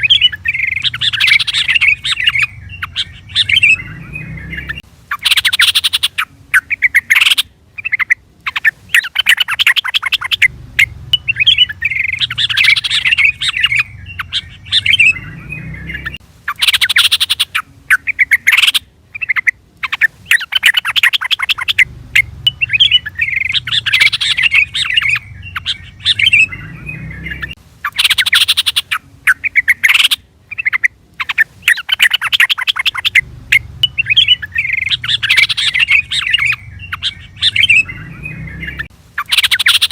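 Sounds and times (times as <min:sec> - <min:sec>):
faint low rumble: 0:00.0 - 0:05.2, 0:10.1 - 0:16.6, 0:21.4 - 0:28.0, 0:32.7 - 0:39.2
bulbul singing: 0:00.0 - 0:39.9.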